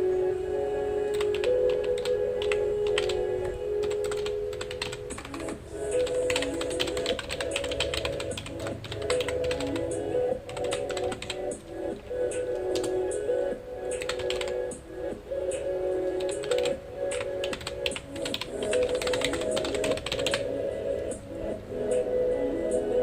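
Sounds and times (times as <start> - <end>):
soft background music: 0.0 - 23.0
computer keyboard typing: 1.1 - 13.1, 13.9 - 14.7, 16.1 - 20.5.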